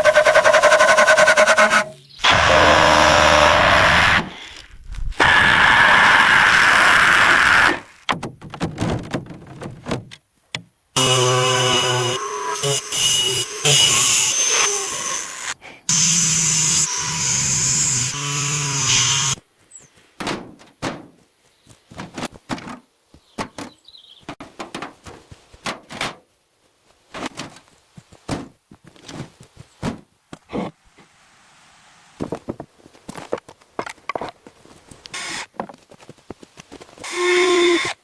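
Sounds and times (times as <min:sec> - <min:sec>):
power tool running: 0:02.2 - 0:03.9, 0:11.0 - 0:19.4.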